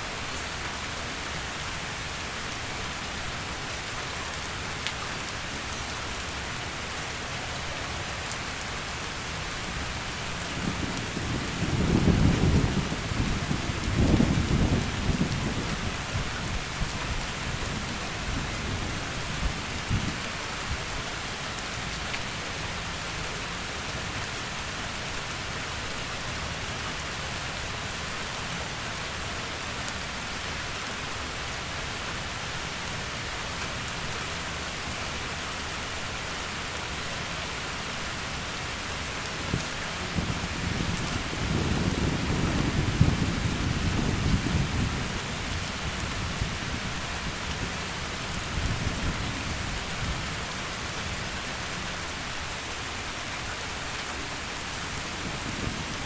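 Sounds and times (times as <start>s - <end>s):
heavy rain: 0.0s - 56.0s
rolling thunder: 10.6s - 15.8s, 40.1s - 45.2s.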